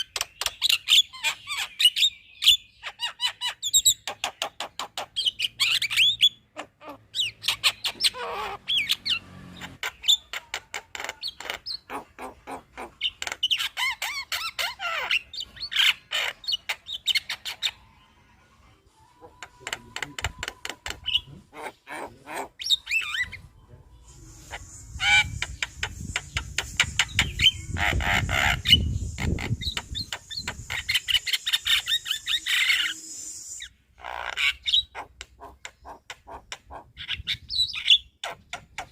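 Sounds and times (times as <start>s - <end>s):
steady high hiss: 24.0s - 33.9s.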